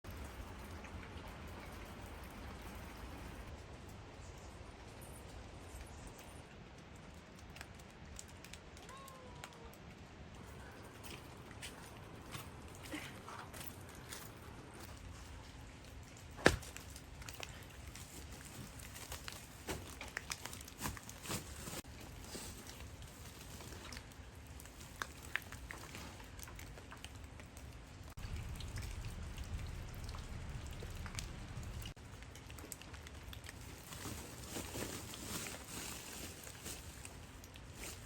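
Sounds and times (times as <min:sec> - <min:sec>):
rain falling: 0:00.1 - 0:21.0, 0:21.6 - 0:38.0
low rumble: 0:28.2 - 0:31.9.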